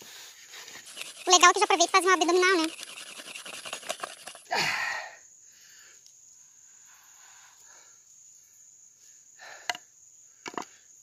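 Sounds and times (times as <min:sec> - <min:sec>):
insect trilling: 0:00.5 - 0:05.1.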